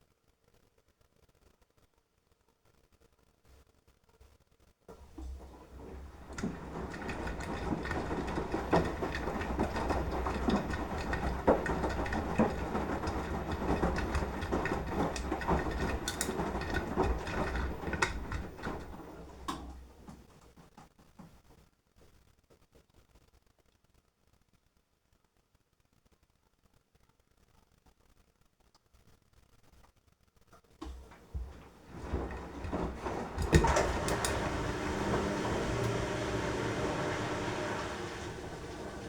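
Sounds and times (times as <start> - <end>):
laundry sloshing and knocking: 4.9 - 20.4, 30.8 - 39.0
washing machine motor hum: 4.9 - 20.6, 30.8 - 39.0.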